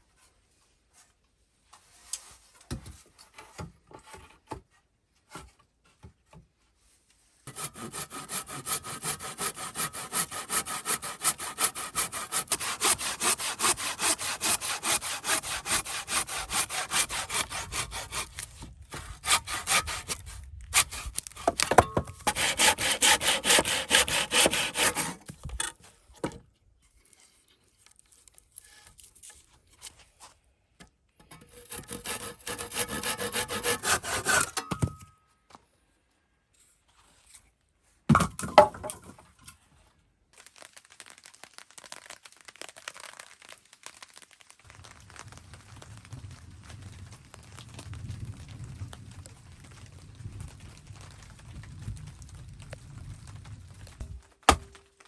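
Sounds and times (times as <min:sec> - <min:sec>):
hand saw cutting wood: 0:07.5 - 0:25.3, 0:31.4 - 0:34.7, 0:54.0 - 0:54.8.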